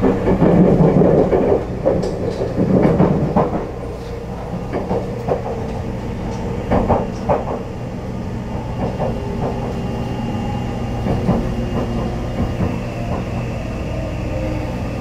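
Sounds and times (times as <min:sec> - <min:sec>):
wheel clacks over rail joints: 0:00.0 - 0:07.7
railcar low rumble: 0:00.0 - 0:15.0.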